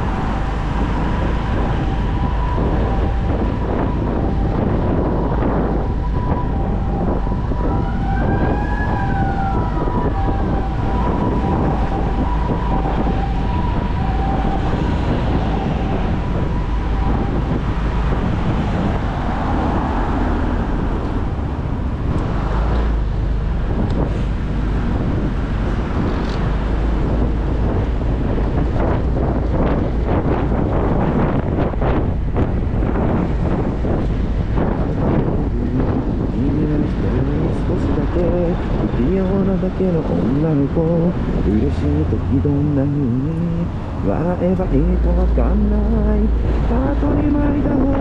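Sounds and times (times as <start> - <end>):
two-tone emergency siren: 0.0 - 22.6
motorcycle wind and road noise: 0.0 - 48.0.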